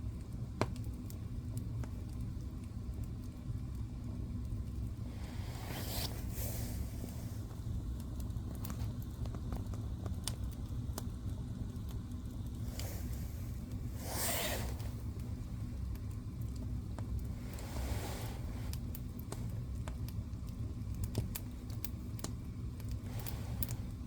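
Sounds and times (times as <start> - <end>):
fire burning in a fireplace: 0.0 - 24.0
fire crackling and popping: 0.0 - 24.0
fire hissing flare-ups: 0.1 - 24.0.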